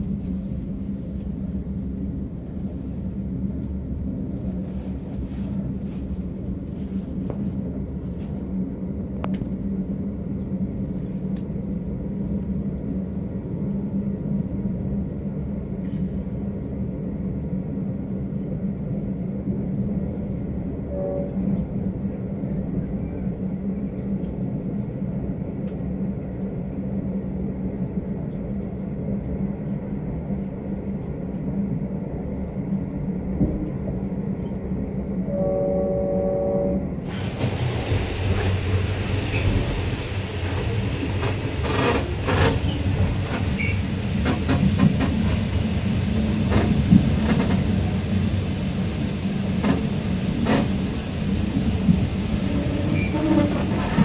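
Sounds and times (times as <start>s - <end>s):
diesel train rumbling: 0.0s - 54.0s
train horn: 20.9s - 21.6s, 35.3s - 37.0s, 52.4s - 54.0s.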